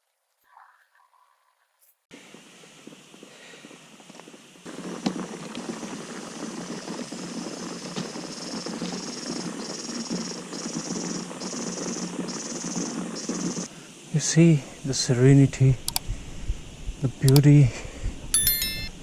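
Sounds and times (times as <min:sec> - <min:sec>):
bicycle rolling over rough road: 0:02.2 - 0:13.7
high insect call: 0:02.4 - 0:17.6.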